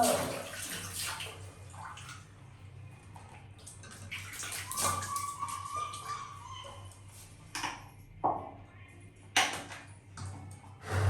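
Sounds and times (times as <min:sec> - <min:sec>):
water splashing and trickling: 0:00.0 - 0:06.8.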